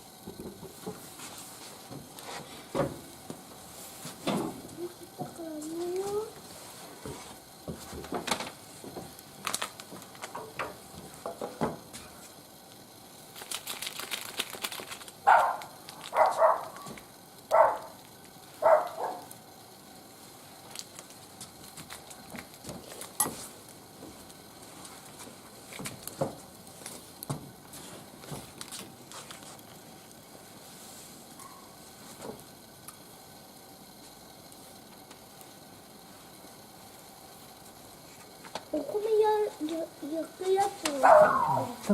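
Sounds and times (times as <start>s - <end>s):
wood fire crackling: 0.0s - 41.9s.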